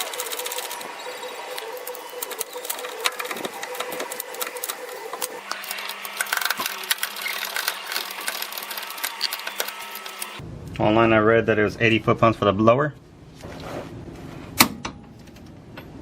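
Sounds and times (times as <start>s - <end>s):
ratchet clicking rapidly: 1.9s - 10.4s.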